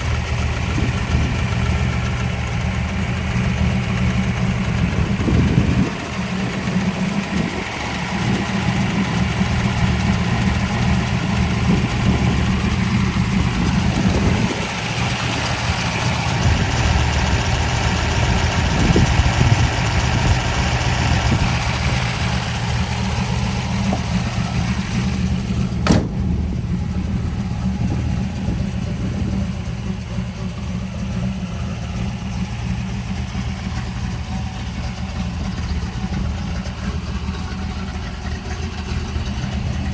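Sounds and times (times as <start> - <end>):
car engine idling: 0.0 - 39.9
sharp click: 25.8 - 26.3.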